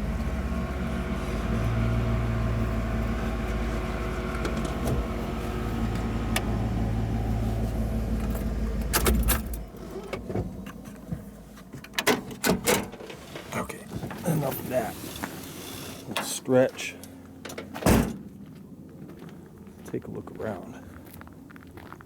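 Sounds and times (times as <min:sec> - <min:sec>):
car engine idling: 0:00.0 - 0:17.4.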